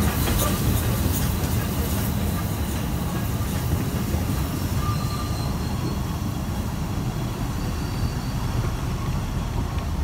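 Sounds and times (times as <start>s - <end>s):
train wheels rumbling on rails: 0.0s - 10.0s
thin wheel squeals: 4.6s - 6.1s, 7.5s - 8.6s.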